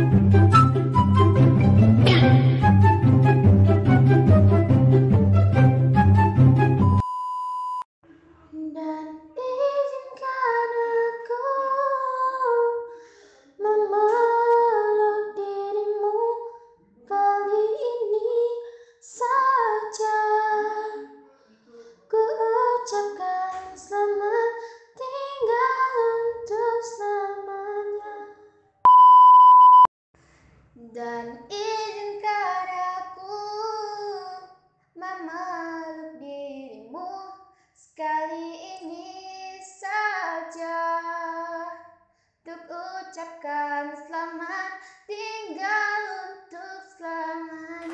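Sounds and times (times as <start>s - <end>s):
steady beep: 6.8s - 7.8s, 28.9s - 29.9s.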